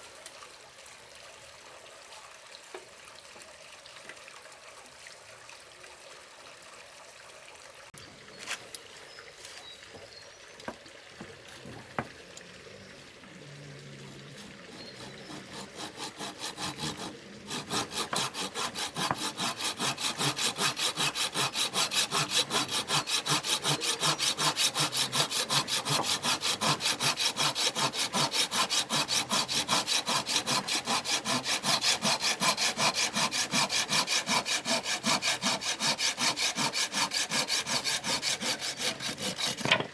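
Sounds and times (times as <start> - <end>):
hand saw cutting wood: 14.4 - 39.9.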